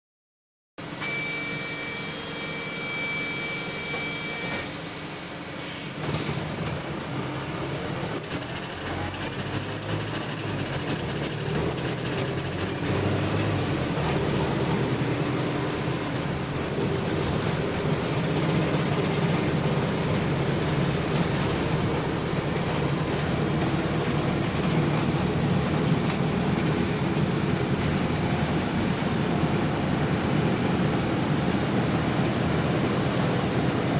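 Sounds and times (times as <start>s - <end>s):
very high whistle: 1.0s - 5.4s
bus engine and road noise: 3.8s - 33.9s
high tone: 8.2s - 12.9s
rapid high-pitched bursts: 8.2s - 12.9s.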